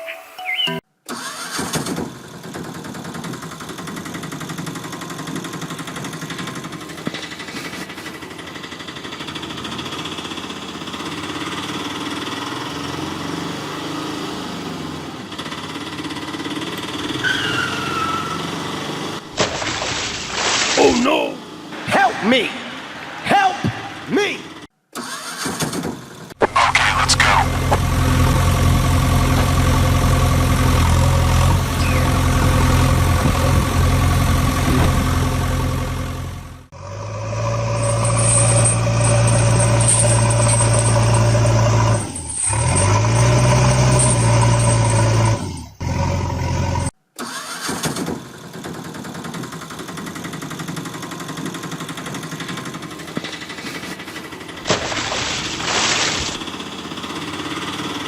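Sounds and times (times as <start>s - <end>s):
vehicle engine running: 2.0s - 17.2s, 26.0s - 46.9s, 48.2s - 58.0s.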